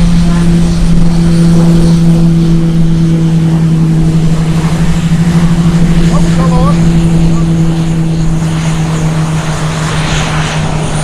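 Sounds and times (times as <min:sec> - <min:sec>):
turboprop propeller drone: 0:00.0 - 0:11.0.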